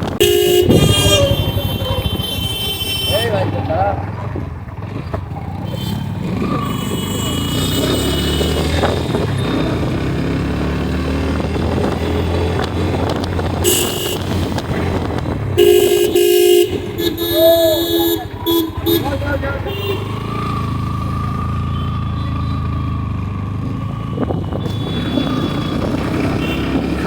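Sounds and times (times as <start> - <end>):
motorcycle engine and road noise: 0.0 - 27.0
vehicle horn honking: 0.2 - 3.5, 5.7 - 9.2, 13.5 - 14.6, 15.6 - 20.6, 24.6 - 27.0.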